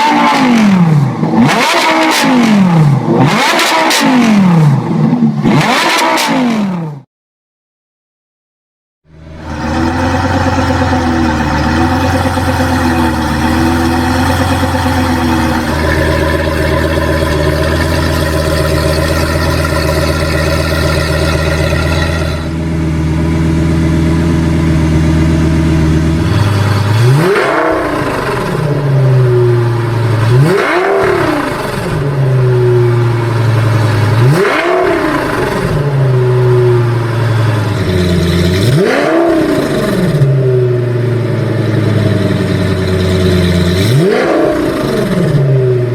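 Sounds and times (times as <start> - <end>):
car engine revving: 0.0 - 7.1, 9.1 - 45.9
car engine idling: 9.1 - 38.8, 39.4 - 45.9.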